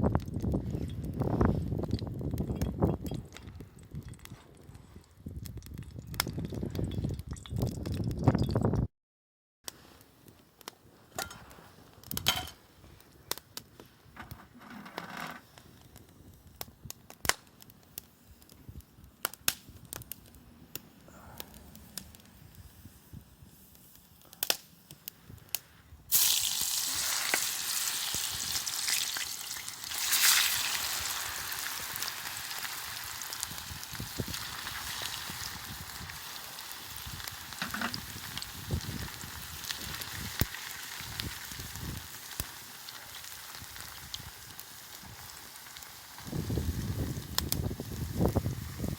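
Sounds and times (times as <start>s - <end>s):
food sizzling in a pan: 26.1s - 48.9s.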